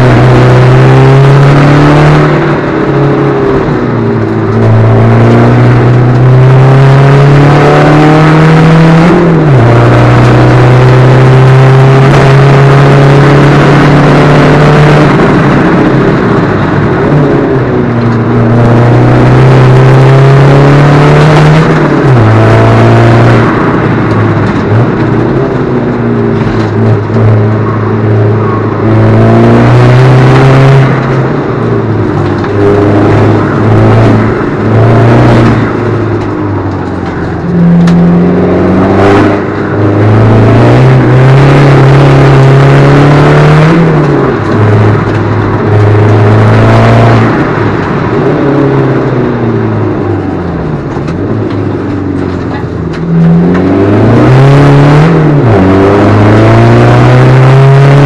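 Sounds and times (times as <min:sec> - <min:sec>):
car engine revving under full throttle: 0:00.0 - 0:58.0.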